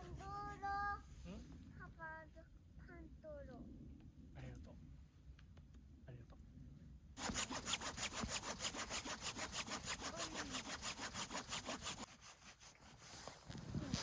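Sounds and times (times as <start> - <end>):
hand saw cutting wood: 7.2 - 13.3.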